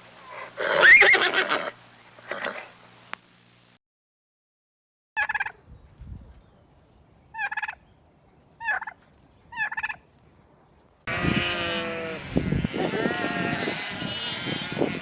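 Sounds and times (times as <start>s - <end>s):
turkey gobbling: 5.2s - 5.6s, 7.4s - 7.8s, 8.6s - 10.0s.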